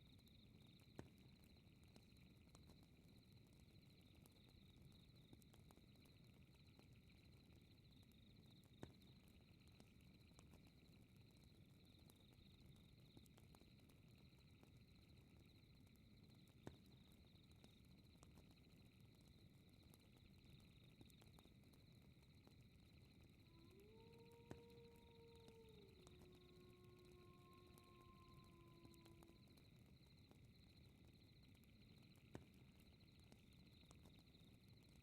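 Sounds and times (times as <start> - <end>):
fire crackling pops: 0.1 - 35.0.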